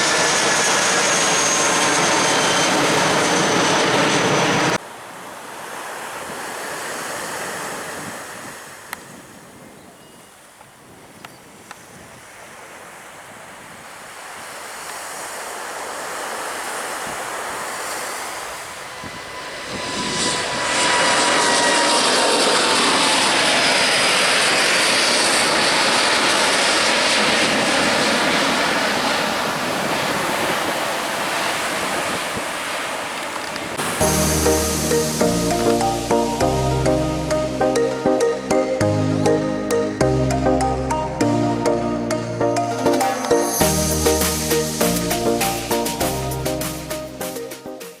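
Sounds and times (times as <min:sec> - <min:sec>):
engine whine gliding down: 0:00.0 - 0:04.8, 0:17.6 - 0:47.2
jet airliner engines passing: 0:00.0 - 0:09.9, 0:14.5 - 0:48.0.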